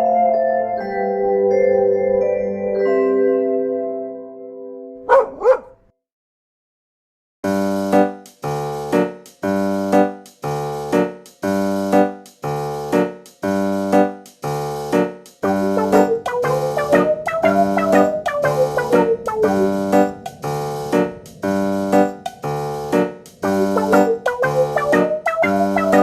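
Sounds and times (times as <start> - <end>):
dog barks: 5.0 - 5.8
keyboard music with chords: 7.5 - 26.0.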